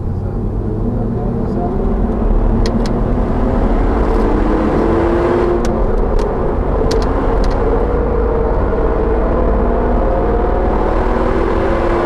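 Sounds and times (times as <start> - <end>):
car engine and road noise: 0.0 - 12.0
sharp clicks: 2.6 - 3.0, 5.6 - 7.6.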